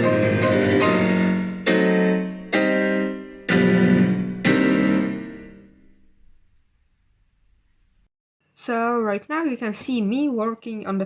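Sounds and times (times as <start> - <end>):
piano music with sustained notes: 0.0 - 6.7
piano chords ringing: 0.0 - 7.6.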